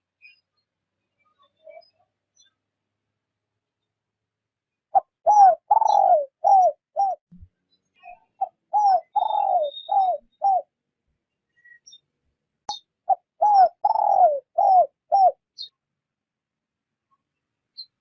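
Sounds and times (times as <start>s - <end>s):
dove cooing: 4.9s - 7.2s, 8.4s - 10.7s, 13.1s - 15.4s.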